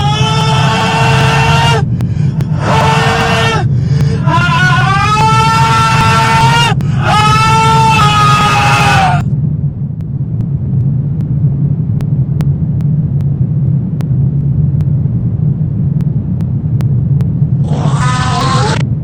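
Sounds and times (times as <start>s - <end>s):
high wailing cry: 0.0s - 9.2s, 17.6s - 18.8s
deep rumbling drone: 0.0s - 19.0s.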